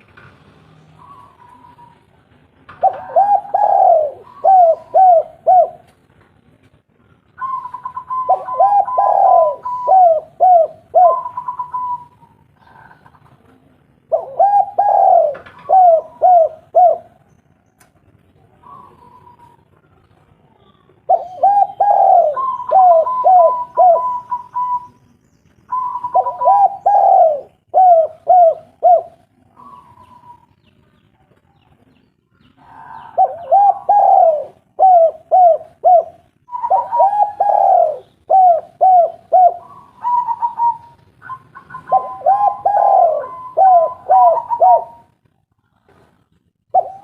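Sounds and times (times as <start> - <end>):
dove cooing: 2.8 - 5.9, 7.4 - 13.5, 14.1 - 17.2, 18.5 - 19.8, 21.0 - 25.0, 25.7 - 30.6, 32.5 - 45.2, 46.7 - 47.0.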